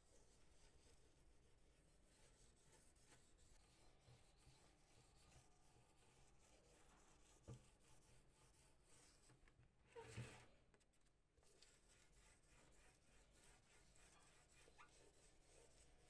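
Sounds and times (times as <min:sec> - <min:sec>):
faint rubbing: 0:00.0 - 0:16.0
soft knock: 0:07.4 - 0:07.7.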